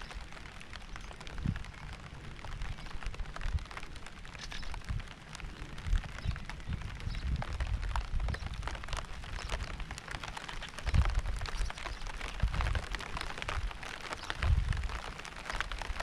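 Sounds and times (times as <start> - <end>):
rain drops tapping on a surface: 0.0 - 16.0.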